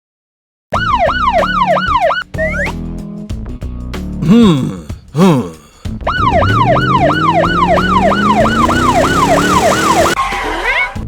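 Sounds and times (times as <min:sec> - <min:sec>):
rising low tone: 0:06.1 - 0:10.1
siren-like falling wail: 0:06.1 - 0:10.2.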